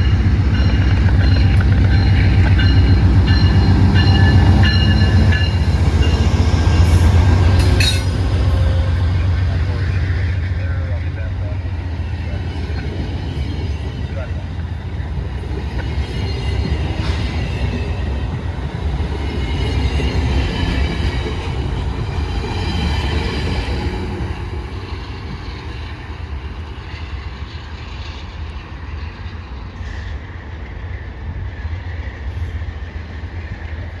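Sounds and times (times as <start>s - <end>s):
train rumbling past: 0.0s - 34.0s
train wheels squealing: 0.6s - 10.1s.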